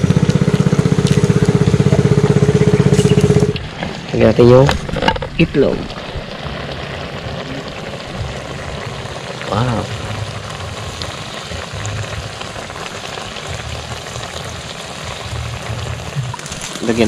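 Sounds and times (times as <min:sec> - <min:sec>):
food sizzling in a pan: 0:05.3 - 0:17.0.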